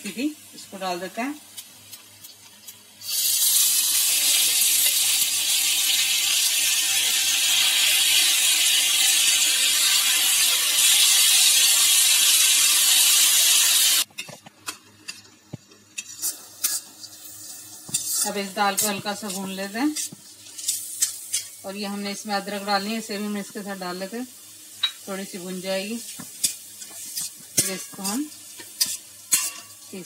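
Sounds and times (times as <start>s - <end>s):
lentils sizzling in hot oil: 0.0s - 30.0s
spatula clinking against pan: 28.8s - 29.8s.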